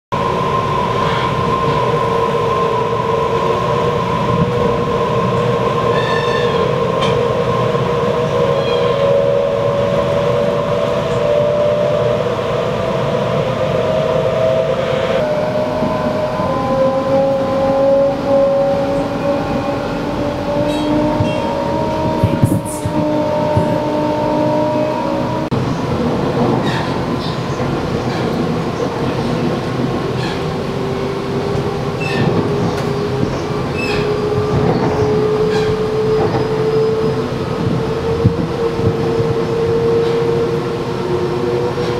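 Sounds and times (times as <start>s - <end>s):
train wheels rumbling: 0.1s - 41.9s
traction motor whine: 1.0s - 25.6s.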